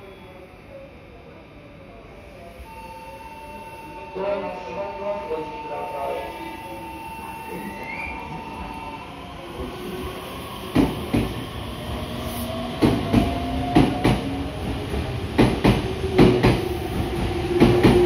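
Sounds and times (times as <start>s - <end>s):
train rumble: 8.2s - 18.0s.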